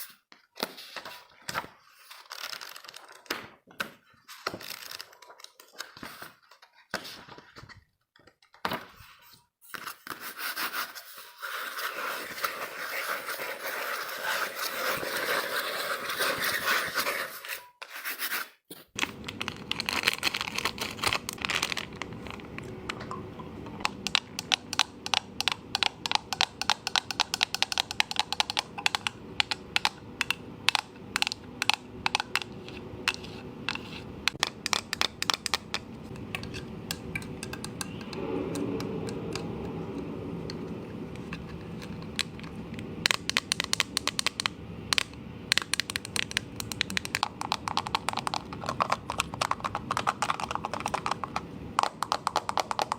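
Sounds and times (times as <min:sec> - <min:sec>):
sharp taps and clicks: 0:22.6 - 0:39.5.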